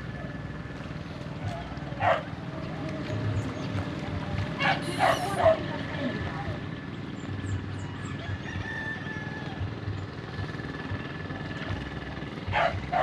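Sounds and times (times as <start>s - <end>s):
low uneven rumble: 0.0s - 13.0s
rooster crowing: 7.9s - 9.7s.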